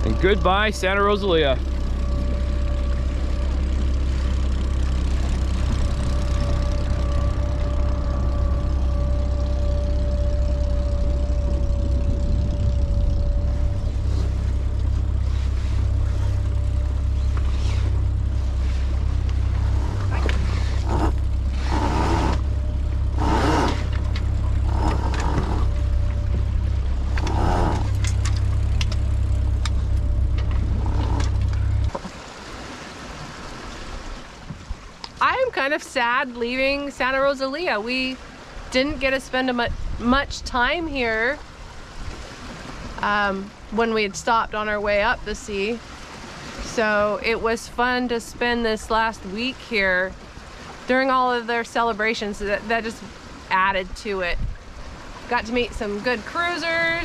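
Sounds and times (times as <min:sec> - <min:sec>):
faint whine: 0:00.0 - 0:32.0
boat engine droning: 0:00.0 - 0:57.0.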